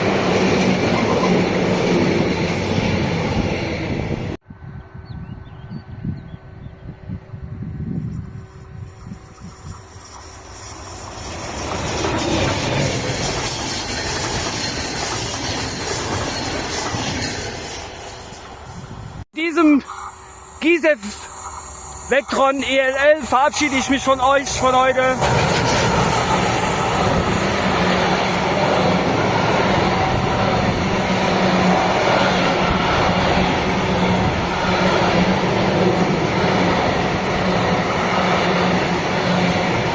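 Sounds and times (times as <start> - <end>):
train wheels rushing on rail: 0.0 - 4.4, 8.2 - 19.2, 19.8 - 39.9.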